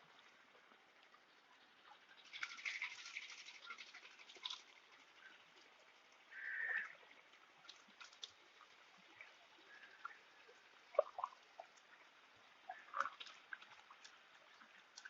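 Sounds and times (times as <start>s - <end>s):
fish splashing at water surface: 2.2s - 5.7s.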